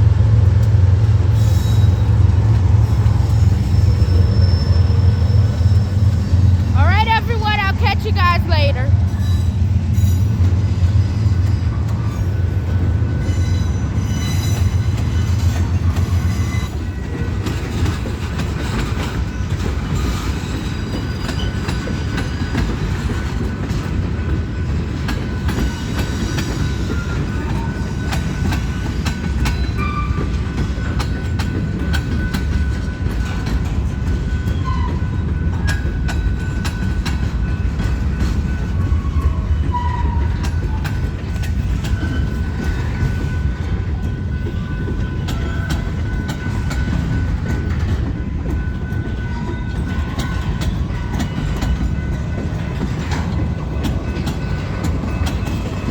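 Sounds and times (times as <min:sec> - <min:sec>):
freight train rumbling: 0:00.0 - 0:55.9
train wheels clicking over rails: 0:00.0 - 0:55.9
wheel squeals: 0:03.3 - 0:06.4.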